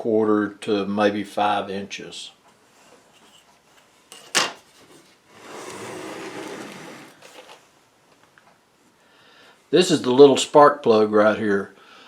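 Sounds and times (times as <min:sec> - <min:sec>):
rustling or sliding: 0:04.7 - 0:07.7.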